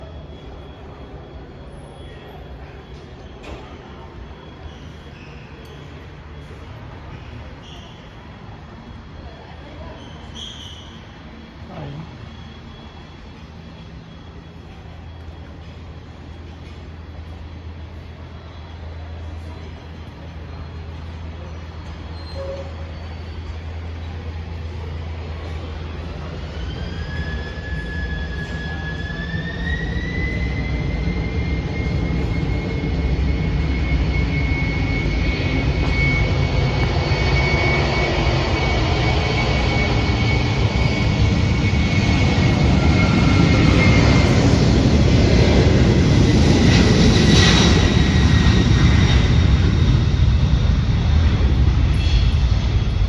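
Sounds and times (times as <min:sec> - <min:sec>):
jet engines spooling up: 0:11.3 - 0:53.0.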